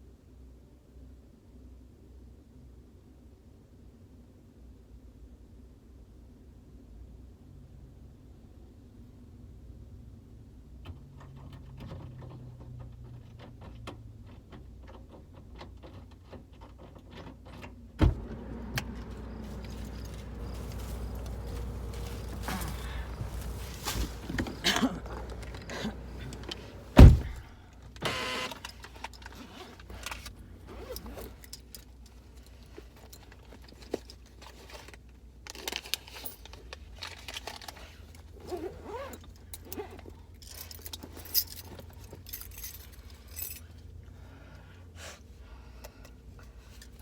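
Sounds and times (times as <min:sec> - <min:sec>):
handling clicks and rattles: 0:11.2 - 0:27.5, 0:28.5 - 0:43.8
low steady hum: 0:18.0 - 0:28.6
loud thump: 0:26.8 - 0:27.5.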